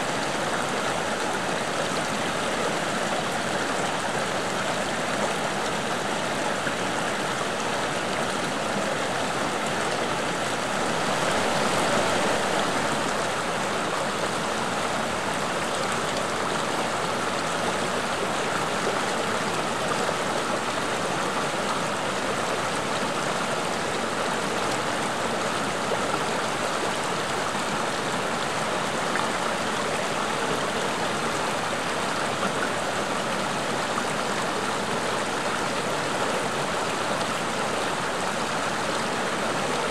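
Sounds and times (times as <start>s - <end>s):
stream water running over rocks: 0.0s - 39.9s.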